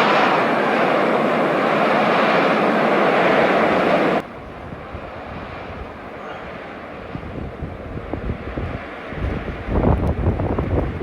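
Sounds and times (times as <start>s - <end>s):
storm wind rushing: 0.0s - 11.0s
wind buffeting microphone: 3.3s - 11.0s.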